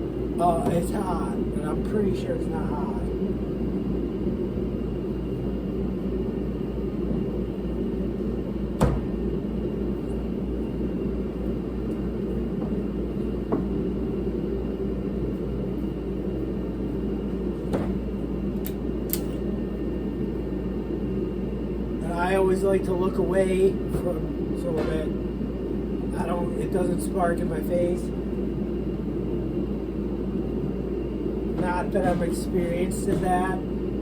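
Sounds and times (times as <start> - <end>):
heater droning: 0.0 - 34.0
pliers clicking on metal cable: 18.6 - 19.4.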